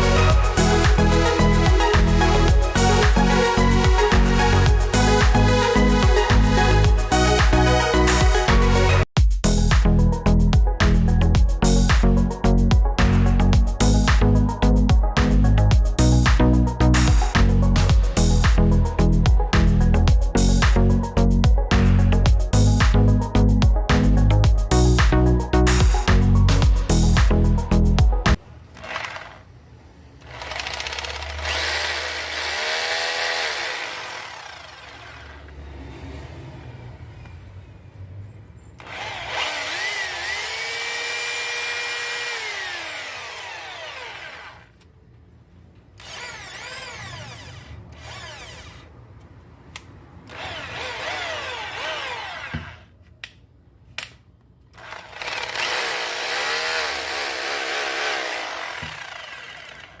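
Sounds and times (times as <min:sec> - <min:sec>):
electric drill motor whining: 0:28.7 - 0:29.5, 0:30.2 - 0:35.6, 0:38.8 - 0:44.8, 0:46.0 - 0:48.9, 0:50.3 - 0:53.0, 0:54.8 - 1:00.0.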